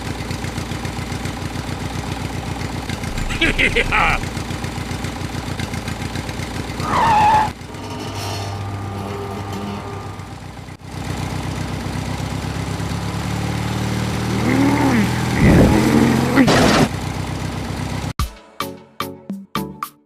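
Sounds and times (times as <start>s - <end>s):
small engine chugging: 0.0s - 8.0s.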